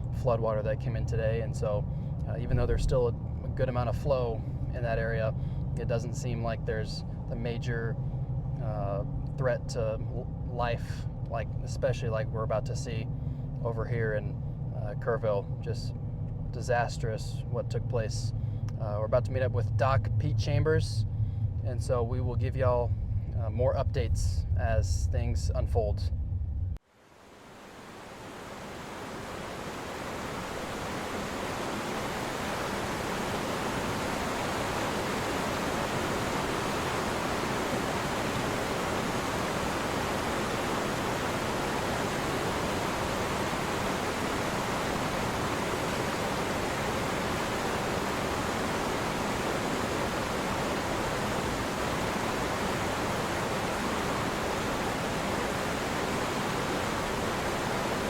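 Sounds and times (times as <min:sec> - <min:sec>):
floodwater rushing: 0:02.4 - 0:03.0, 0:27.0 - 0:58.0.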